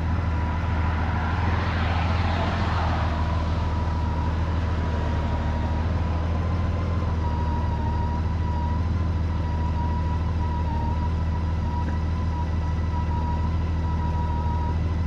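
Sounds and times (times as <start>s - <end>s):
motorcycle engine humming: 0.0s - 15.0s.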